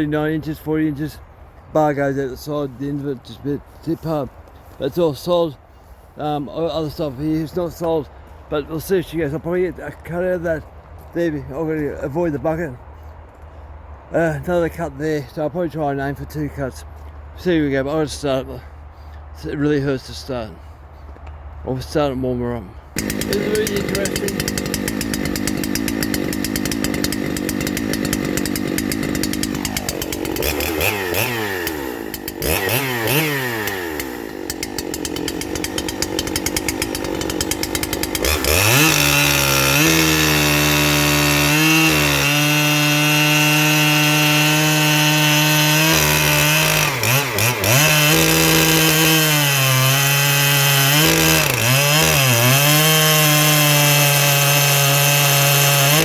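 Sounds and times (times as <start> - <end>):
chainsaw cutting log: 23.0 - 56.0
chainsaw revving: 23.0 - 56.0.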